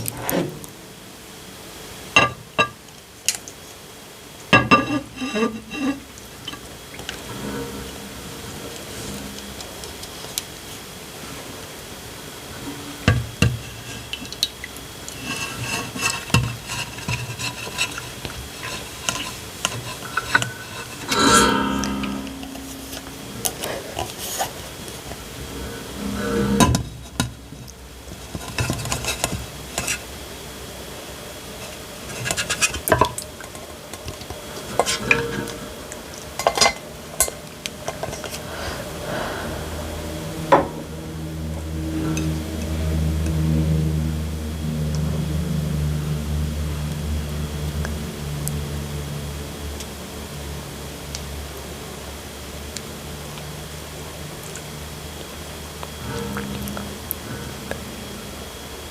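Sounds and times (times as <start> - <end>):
food stirred in a bowl: 13.1 - 21.3, 26.7 - 30.1, 31.5 - 38.5.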